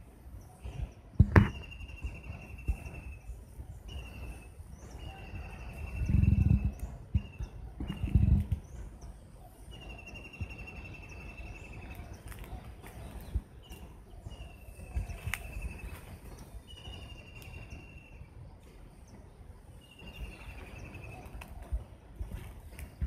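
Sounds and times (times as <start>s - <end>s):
low thumps: 0.8s - 1.8s.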